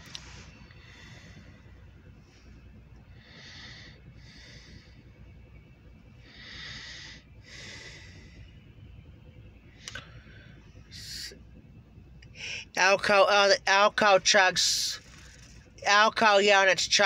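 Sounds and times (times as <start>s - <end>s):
low steady rumble: 0.0s - 17.0s
person breathing: 0.1s - 5.2s, 6.2s - 8.6s, 12.3s - 12.8s.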